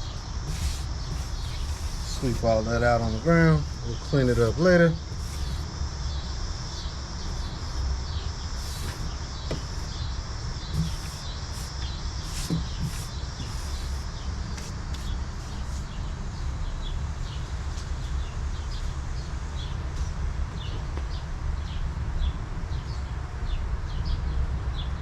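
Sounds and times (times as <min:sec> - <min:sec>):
low steady rumble: 0:00.0 - 0:17.1
insects chirring: 0:00.0 - 0:19.8.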